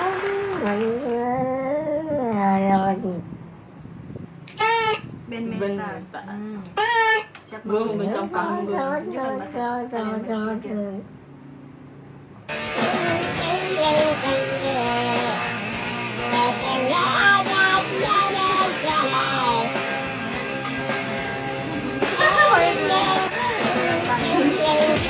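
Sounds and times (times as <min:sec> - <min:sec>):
person singing: 0:00.0 - 0:02.8, 0:12.7 - 0:15.6, 0:16.2 - 0:19.8, 0:22.0 - 0:25.0
rock music with electric guitar: 0:12.5 - 0:25.0.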